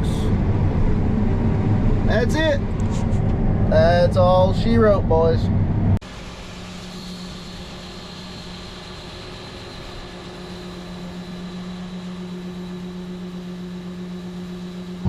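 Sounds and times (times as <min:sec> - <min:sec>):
combine harvester engine humming: 0:00.0 - 0:15.0
faint high whine: 0:06.1 - 0:15.0.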